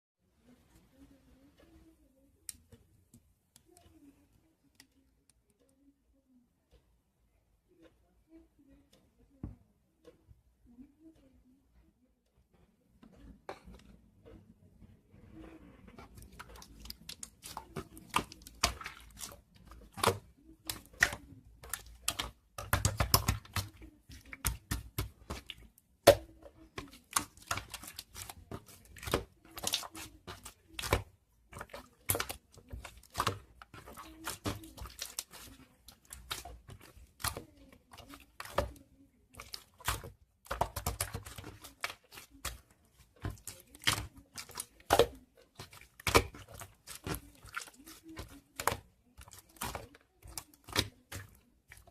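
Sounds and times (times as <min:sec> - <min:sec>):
crunchy slime crackling: 0:16.0 - 0:51.9.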